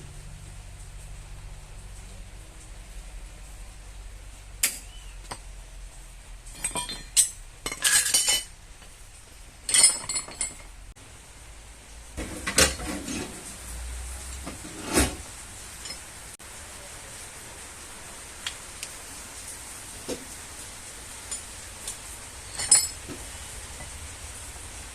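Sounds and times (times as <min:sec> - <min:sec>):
metal tools clinking: 0:06.4 - 0:08.6, 0:09.7 - 0:10.8, 0:14.3 - 0:16.2, 0:21.2 - 0:24.1.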